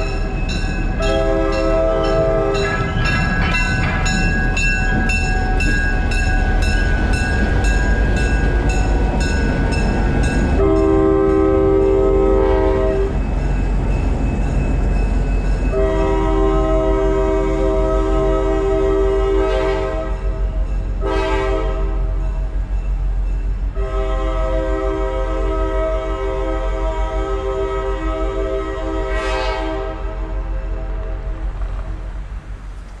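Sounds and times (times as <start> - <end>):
train running noise: 0.0 - 33.0
locomotive horn blasts: 1.0 - 4.2, 10.6 - 13.2, 15.7 - 20.4, 21.0 - 22.1, 23.8 - 31.2
bell ringing rapidly: 2.6 - 10.4.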